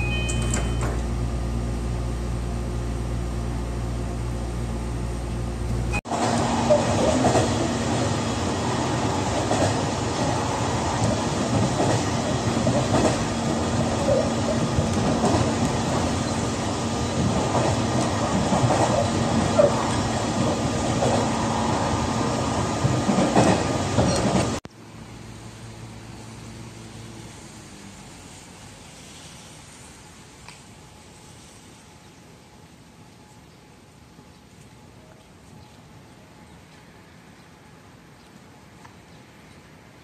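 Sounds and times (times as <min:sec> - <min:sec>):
two-note chime: 0:00.0 - 0:01.0
train wheels rumbling on rails: 0:05.6 - 0:24.7.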